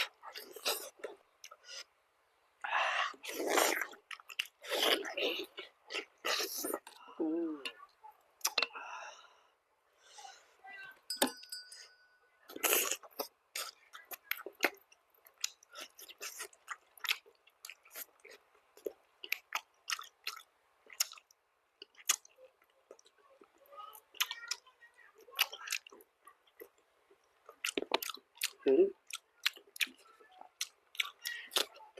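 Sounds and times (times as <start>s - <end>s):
wet chewing mouth clicks: 30.6s - 31.8s.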